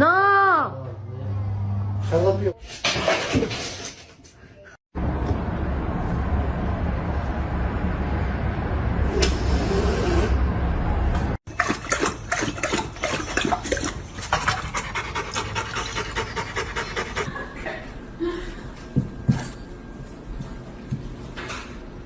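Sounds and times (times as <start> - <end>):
dog panting: 12.3 - 17.3.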